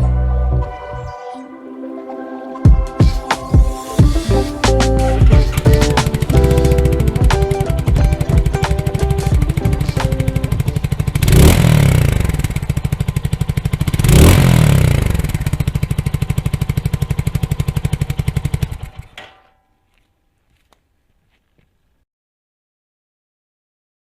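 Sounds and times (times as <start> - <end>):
motorcycle engine revving: 3.0 - 19.4.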